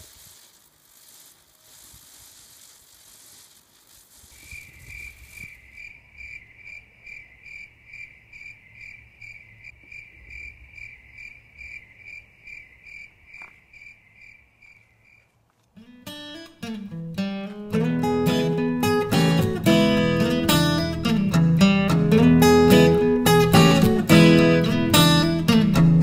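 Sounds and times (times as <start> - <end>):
cricket chirping: 0.1 - 15.4
acoustic guitar strumming: 15.8 - 26.0.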